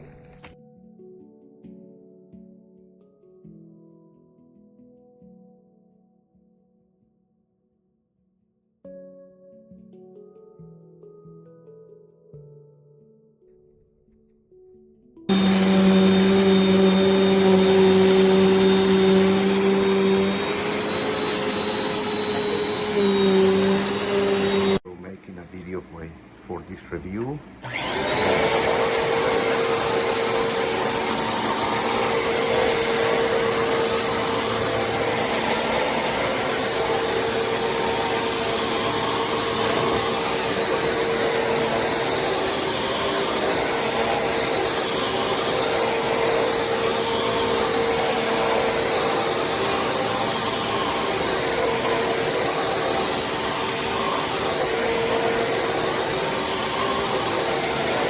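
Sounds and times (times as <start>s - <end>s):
upright vacuum cleaner running: 15.3s - 24.8s, 27.6s - 58.0s.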